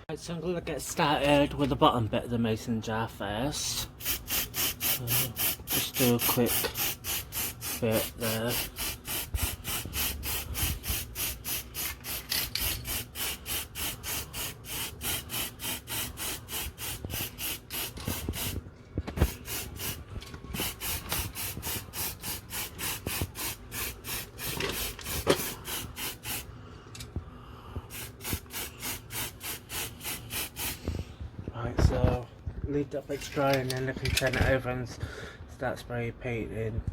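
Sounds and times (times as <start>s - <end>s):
aerosol spray paint pulses: 4.0s - 26.5s, 27.9s - 30.8s.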